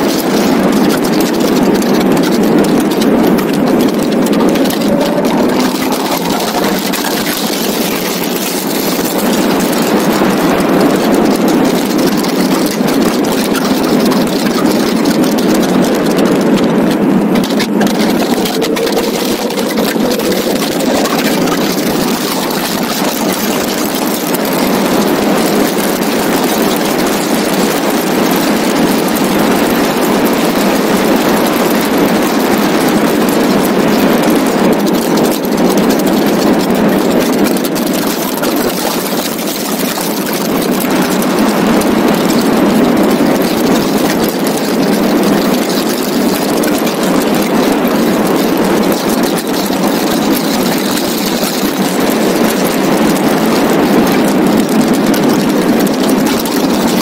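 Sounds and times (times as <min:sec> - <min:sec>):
car engine running hard: 0:00.0 - 0:57.0
wind and road noise: 0:00.0 - 0:57.0.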